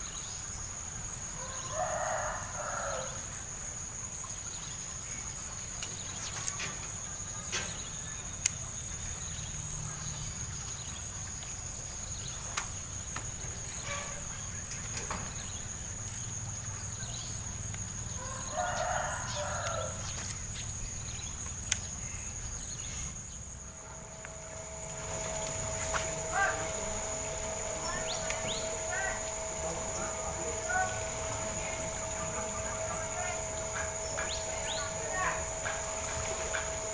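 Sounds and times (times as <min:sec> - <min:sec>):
insects chirring: 0:00.0 - 0:36.9
sharp clicks: 0:21.4 - 0:21.9, 0:28.2 - 0:28.6.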